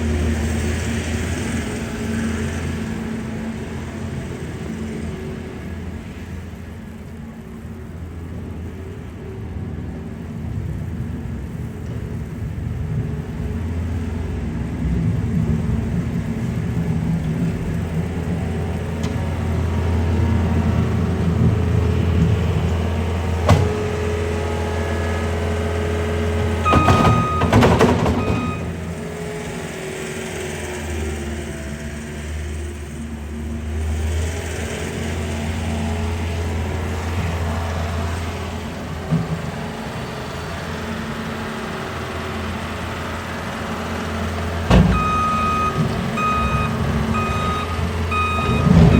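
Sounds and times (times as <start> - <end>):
traffic rumble: 0.0 - 48.9.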